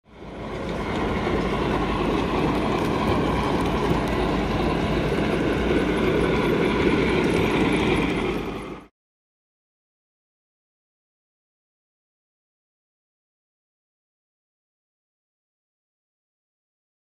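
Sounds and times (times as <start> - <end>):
train rumbling on rails: 0.0 - 8.9.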